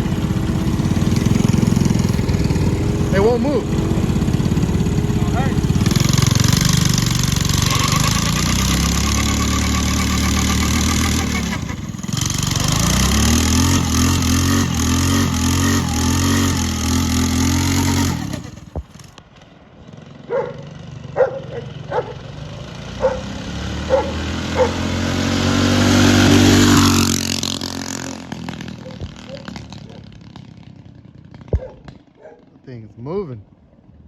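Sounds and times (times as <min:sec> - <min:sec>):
minibike engine revving: 0:00.0 - 0:32.4
dog barking: 0:20.3 - 0:20.6, 0:21.2 - 0:22.2, 0:23.0 - 0:23.3, 0:23.9 - 0:24.8, 0:28.8 - 0:30.1, 0:31.6 - 0:32.5.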